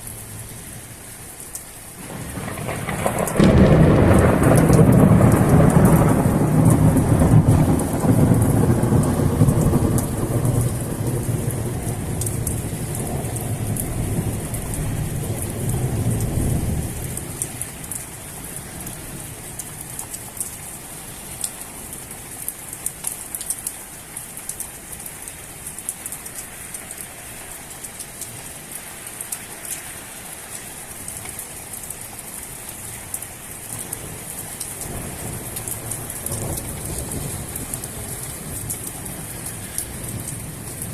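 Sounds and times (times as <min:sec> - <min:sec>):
heavy rain: 0:00.0 - 0:40.9
raindrop clicks: 0:01.4 - 0:20.6, 0:22.3 - 0:27.2, 0:32.7 - 0:40.9
thunder rumbling: 0:02.0 - 0:19.3, 0:33.8 - 0:40.9.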